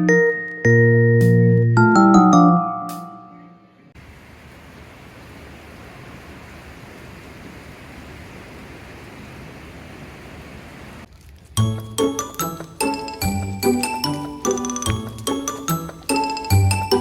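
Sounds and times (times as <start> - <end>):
falling rain hiss: 4.0 - 11.1
tinkling mallet percussion music: 11.6 - 17.0.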